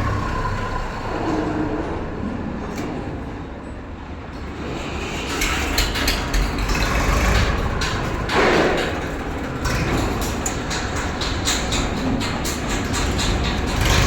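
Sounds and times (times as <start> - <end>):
diesel engine under load: 0.0 - 14.0
knocks and clatter: 4.5 - 14.0.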